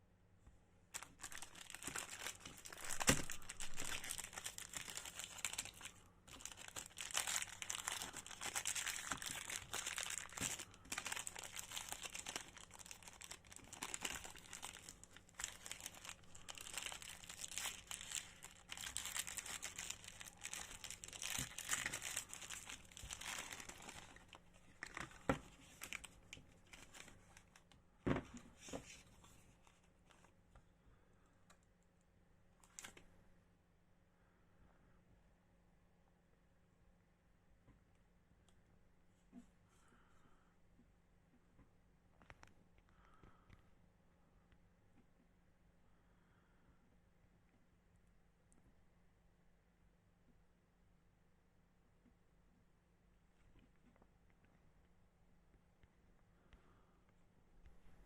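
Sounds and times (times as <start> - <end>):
candy wrapper crinkling and tearing: 0.9 - 27.7.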